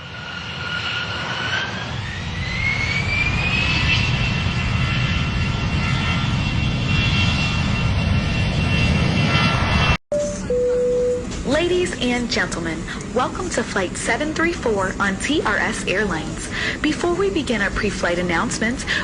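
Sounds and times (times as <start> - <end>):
jet engines spooling up: 0.0 - 10.6.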